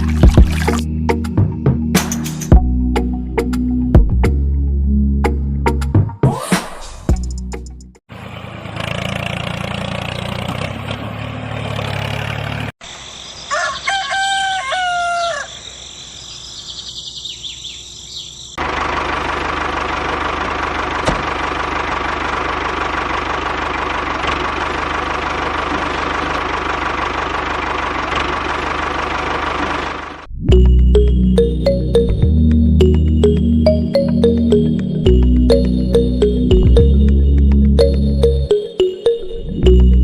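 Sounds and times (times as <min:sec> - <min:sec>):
rooster crowing: 0:13.4 - 0:15.7.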